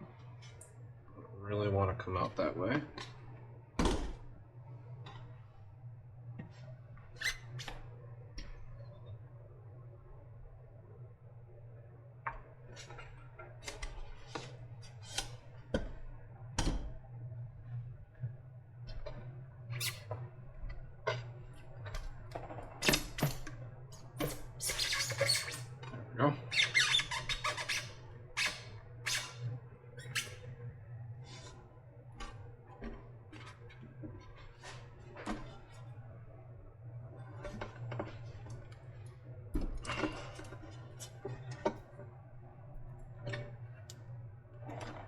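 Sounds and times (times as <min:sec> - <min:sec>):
battery casing scraping and squeaking: 0:24.2 - 0:25.7, 0:26.5 - 0:29.4, 0:30.0 - 0:30.5.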